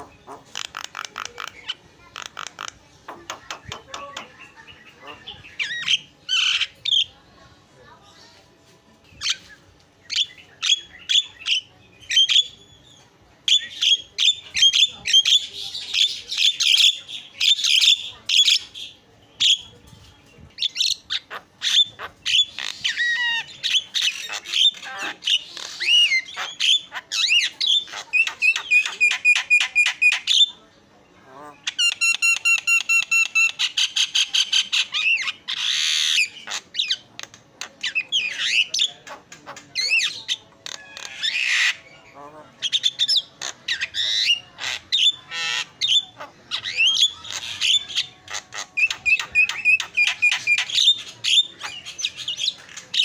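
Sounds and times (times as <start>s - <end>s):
myna bird singing: 0.0s - 7.2s, 9.0s - 53.0s
bird whistling and squawking: 42.6s - 53.0s.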